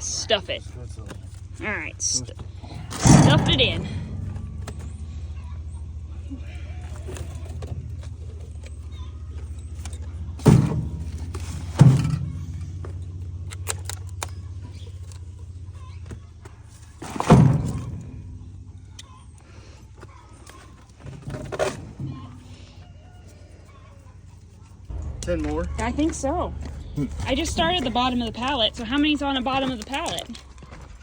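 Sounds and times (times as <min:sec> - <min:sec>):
vehicle engine idling: 0:00.0 - 0:31.0
heavy thumps: 0:01.1 - 0:13.5, 0:24.9 - 0:31.0.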